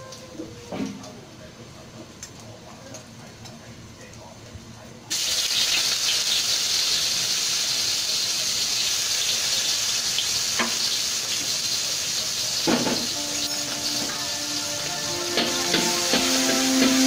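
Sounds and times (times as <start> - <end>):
garlic sizzling in hot oil: 5.1 - 17.0.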